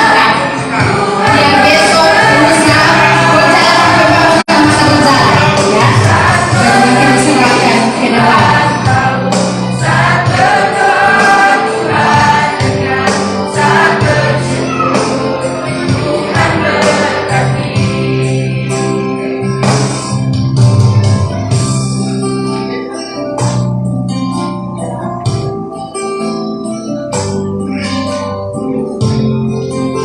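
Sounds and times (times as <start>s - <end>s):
choir singing in harmony: 0.0s - 19.9s
sustained keyboard chords: 0.0s - 30.0s.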